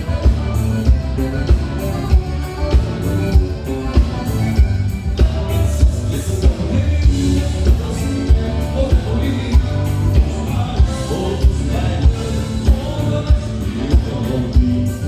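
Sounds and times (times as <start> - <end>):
live dance band music: 0.0 - 15.0
person singing: 5.1 - 15.0.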